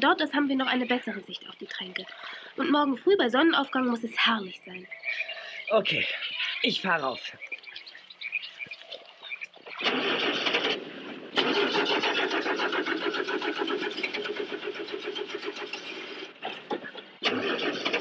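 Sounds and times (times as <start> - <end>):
starter motor cranking engine: 9.6 - 18.0.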